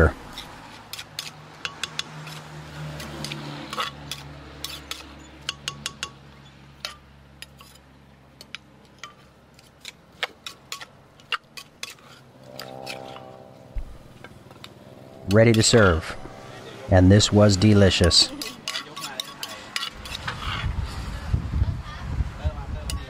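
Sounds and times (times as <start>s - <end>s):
utensils clinking against a mortar: 0.3s - 2.4s, 3.0s - 13.1s, 17.2s - 20.7s.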